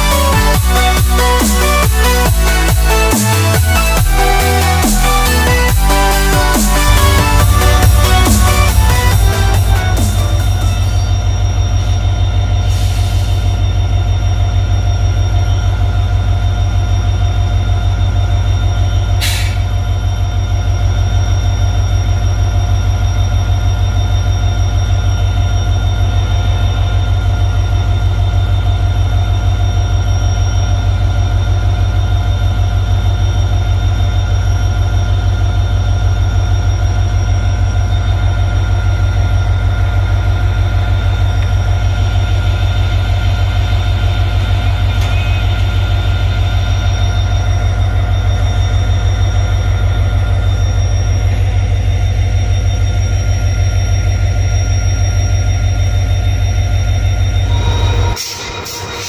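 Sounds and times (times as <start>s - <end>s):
train rumble: 0.0s - 21.2s, 30.8s - 52.6s
constant whine: 0.0s - 59.0s.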